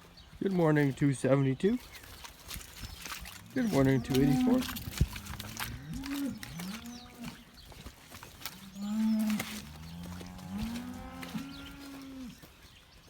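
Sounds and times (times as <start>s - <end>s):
cows mooing: 3.4s - 7.5s, 8.4s - 12.5s.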